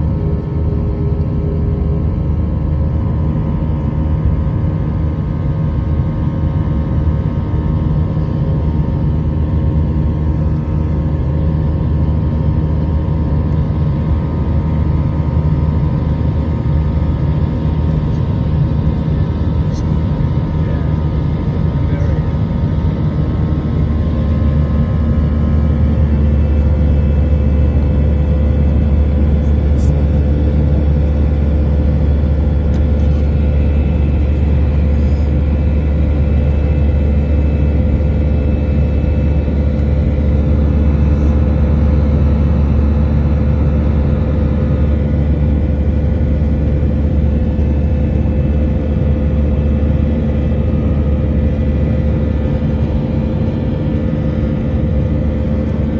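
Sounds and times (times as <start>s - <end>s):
jet engines rumbling: 15.8s - 55.9s.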